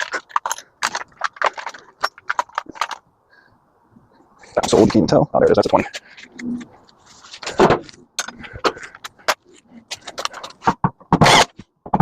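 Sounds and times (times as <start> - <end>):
metal tools clicking and clinking: 0.0 - 3.0, 8.2 - 9.2.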